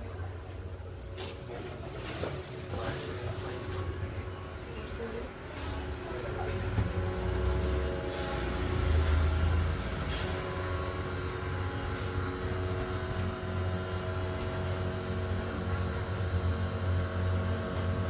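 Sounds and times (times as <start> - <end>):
steady higher tones: 0.0 - 16.3
machine hum with low drone: 0.0 - 18.0.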